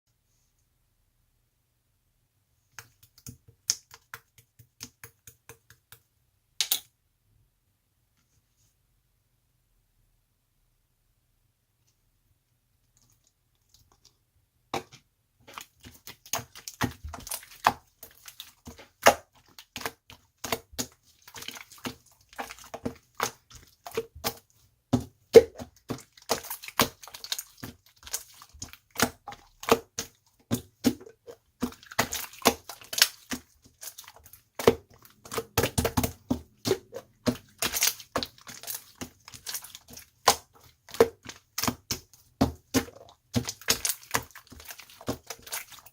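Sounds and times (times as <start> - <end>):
slime popping and crackling: 25.3 - 45.9.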